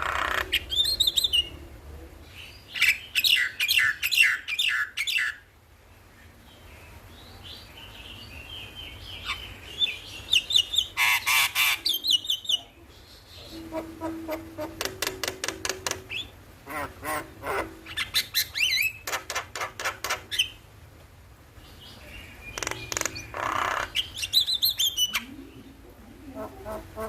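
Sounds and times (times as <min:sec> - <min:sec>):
harsh rasping bird call: 0:11.0 - 0:12.2, 0:13.4 - 0:20.6, 0:22.6 - 0:24.2
bird chattering clicks: 0:22.5 - 0:24.6.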